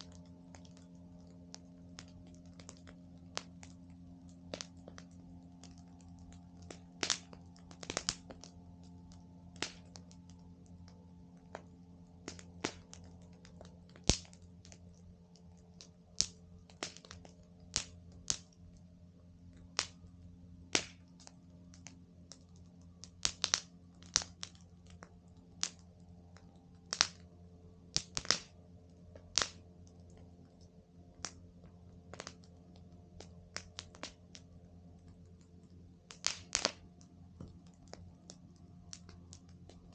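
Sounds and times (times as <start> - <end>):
faint steady hum: 0.0 - 39.9
wood fire crackling: 0.0 - 39.9.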